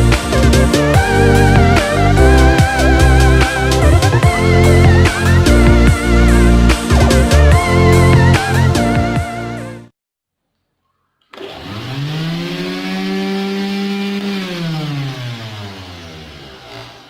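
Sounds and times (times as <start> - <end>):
electric motor whining: 11.3 - 17.0.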